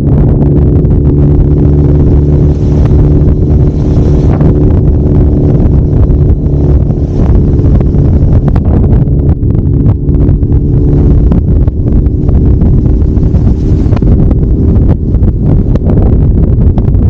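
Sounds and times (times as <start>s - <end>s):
motorcycle engine running: 0.0s - 17.0s
wind buffeting microphone: 0.0s - 17.0s.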